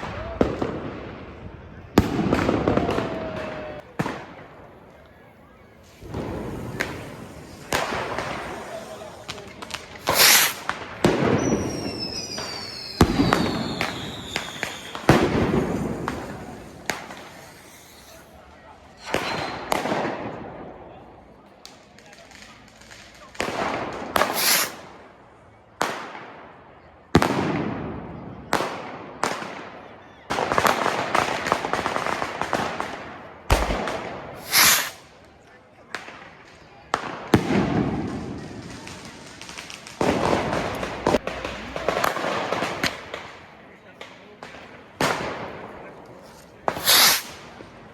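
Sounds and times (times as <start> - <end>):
fireworks bangs with rolling echo: 0.0 - 47.9
small firework cracks: 0.0 - 47.9
faint falling whistle: 11.4 - 15.1, 19.0 - 19.7.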